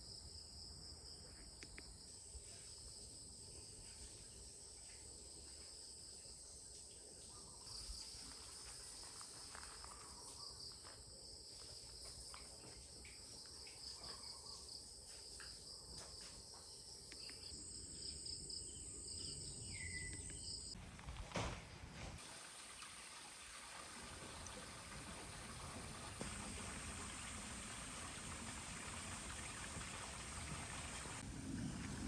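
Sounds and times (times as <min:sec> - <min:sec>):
crickets trilling: 0:00.0 - 0:20.8.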